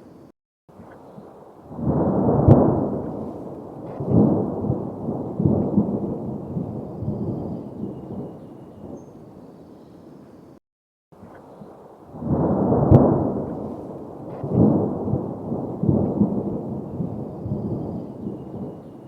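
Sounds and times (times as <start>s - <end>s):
thunder crack and rumble: 1.7s - 9.0s, 12.1s - 19.0s.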